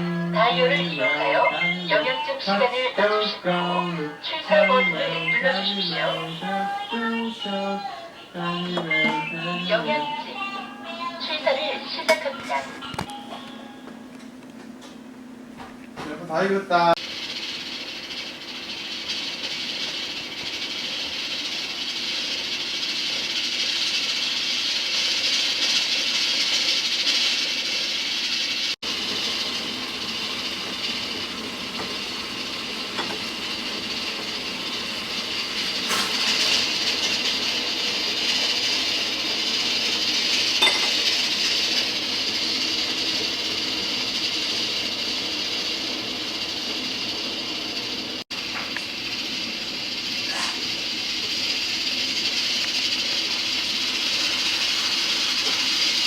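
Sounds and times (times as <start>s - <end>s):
rice cooker steam hissing: 0.0s - 12.5s, 16.3s - 56.0s.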